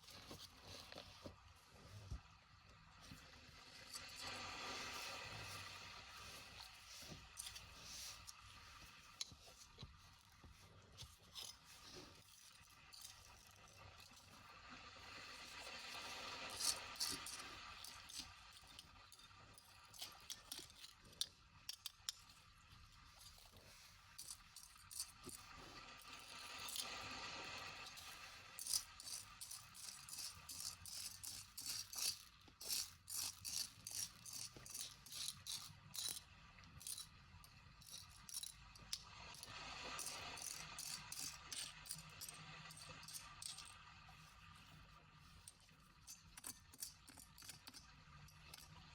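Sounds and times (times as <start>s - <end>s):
small hard objects rattling: 27.8s - 36.2s, 37.8s - 43.7s.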